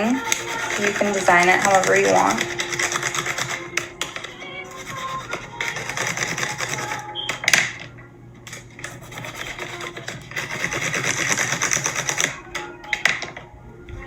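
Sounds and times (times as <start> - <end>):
scribbling on paper plate: 0.0 - 7.1, 8.8 - 12.4.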